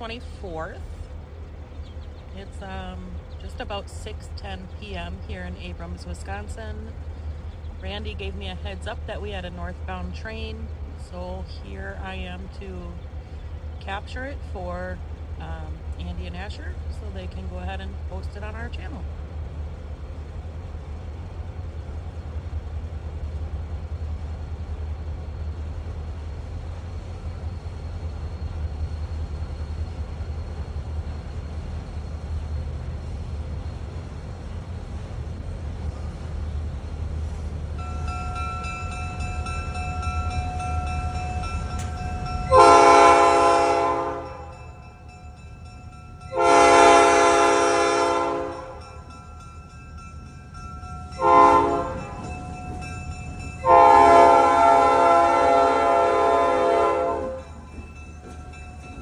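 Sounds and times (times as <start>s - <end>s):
freight train rumble: 0.0s - 59.0s
train air horn blasts: 42.5s - 44.6s, 46.3s - 48.8s, 51.2s - 52.2s, 53.6s - 57.5s.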